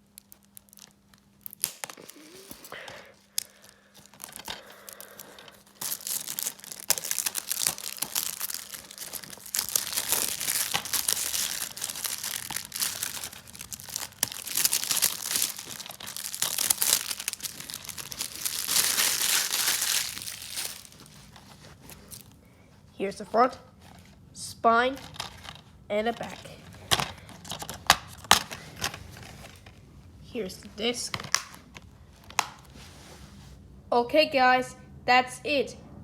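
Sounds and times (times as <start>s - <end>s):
plastic shrink wrap crinkling: 0.0s - 22.4s, 25.0s - 29.8s, 31.1s - 32.8s.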